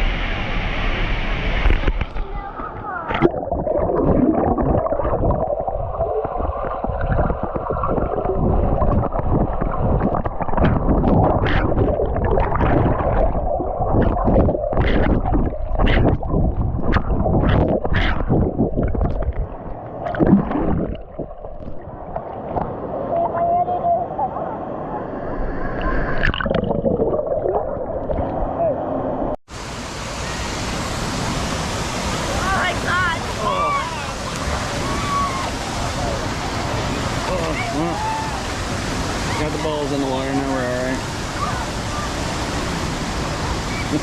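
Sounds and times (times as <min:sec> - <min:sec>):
muffled water gurgling and sloshing: 0:00.0 - 0:44.0
sharp water splashes: 0:03.1 - 0:22.7.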